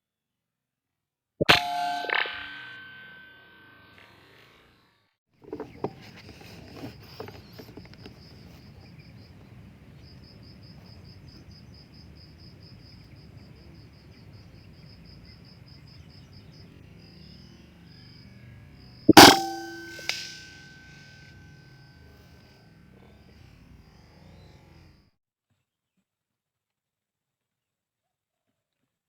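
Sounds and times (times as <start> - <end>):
air rifle shot: 19.1 - 20.5.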